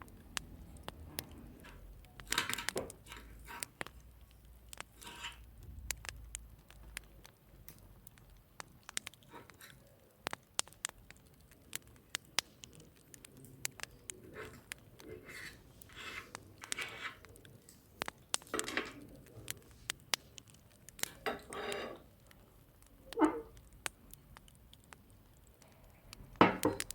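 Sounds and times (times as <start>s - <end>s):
dishes scraping: 21.2s - 22.1s, 23.1s - 23.5s.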